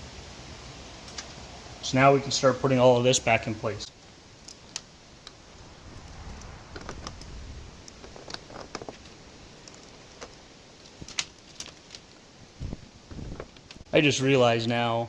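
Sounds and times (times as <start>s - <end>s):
electrical wires rustling and clicking: 3.9s - 13.9s.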